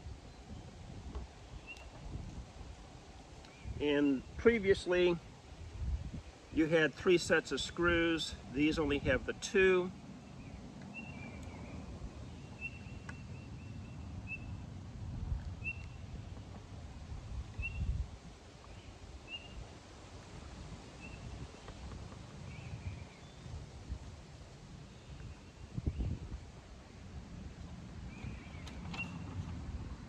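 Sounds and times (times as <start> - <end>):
low rumbling background noise: 0.0 - 30.0
bird chirping: 10.2 - 14.6, 15.6 - 16.4, 28.1 - 29.3.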